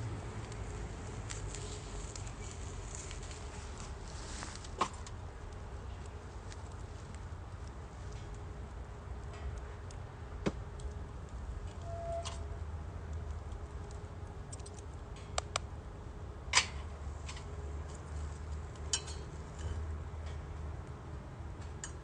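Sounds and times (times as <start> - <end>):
firewood burning: 0.0 - 22.0
fire pops and cracks: 0.4 - 8.4, 13.2 - 15.7.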